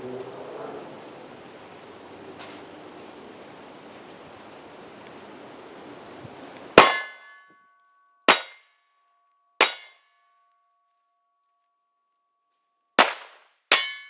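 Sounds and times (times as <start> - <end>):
metallic clang of steel plate: 6.8 - 7.5, 8.3 - 8.7, 9.6 - 10.1, 13.7 - 14.0
pistol shots: 13.0 - 13.8.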